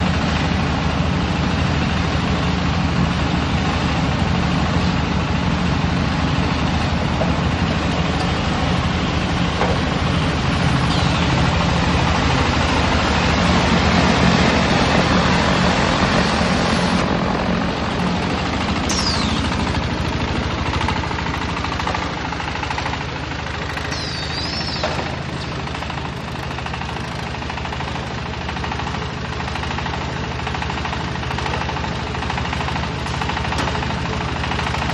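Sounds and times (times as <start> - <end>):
baler machinery drone: 0.0 - 34.9
low engine hum: 0.0 - 34.9
high machine squeals: 18.8 - 19.7, 23.8 - 25.6.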